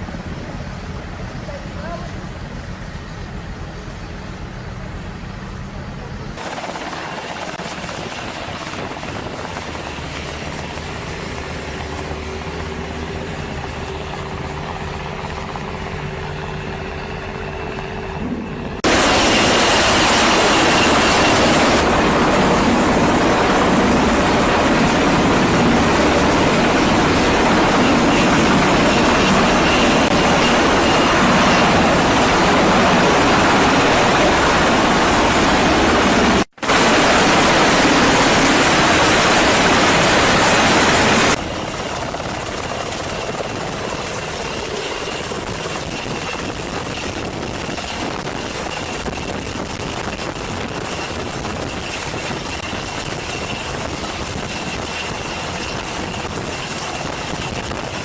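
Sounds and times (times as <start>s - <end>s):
rushing noise: 16.3s - 58.0s.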